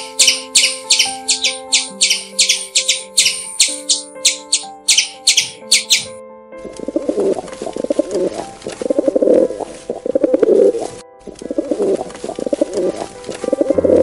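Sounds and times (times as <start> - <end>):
pigeons cooing: 6.8 - 14.0.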